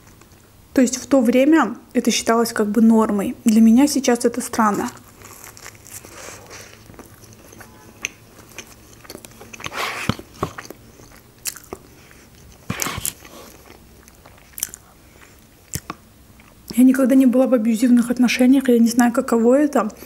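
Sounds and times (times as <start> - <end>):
person biting and chewing: 5.0 - 16.6.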